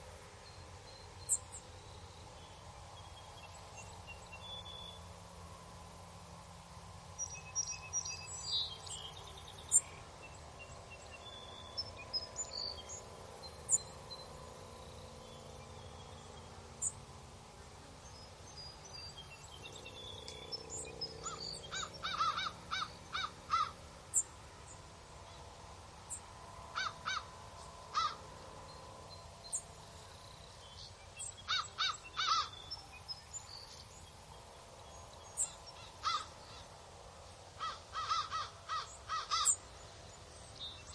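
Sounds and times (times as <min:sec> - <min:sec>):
faint outdoor ambience: 0:00.0 - 0:40.9
small bird chirps: 0:00.9 - 0:01.7
birds calling: 0:18.2 - 0:40.9.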